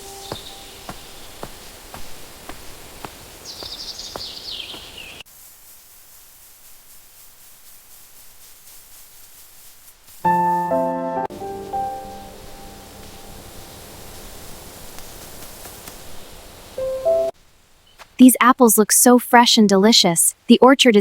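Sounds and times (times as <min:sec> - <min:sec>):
piano notes: 0:00.0 - 0:01.1, 0:10.2 - 0:13.9, 0:16.8 - 0:17.3
bird descending trill: 0:00.0 - 0:01.4
steady outdoor hiss: 0:00.0 - 0:20.8.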